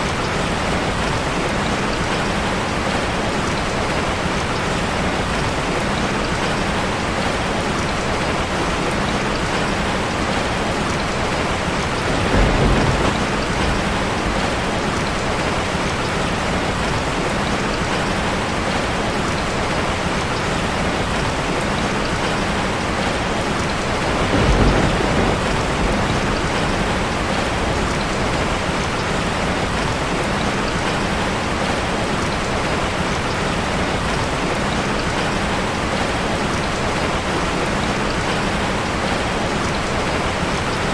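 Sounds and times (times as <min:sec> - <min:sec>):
heavy rain on a metal roof: 0:00.0 - 0:40.9
low rumbles: 0:10.9 - 0:16.9.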